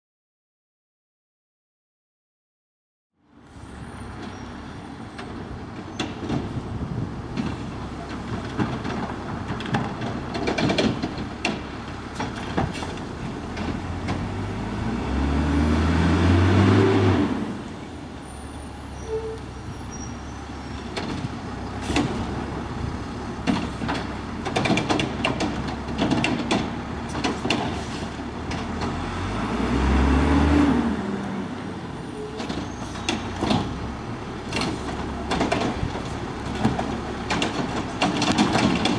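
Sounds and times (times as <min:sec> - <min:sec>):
diesel engine revving: 0:11.2 - 0:38.9
metal knocks and clanks: 0:34.5 - 0:38.9.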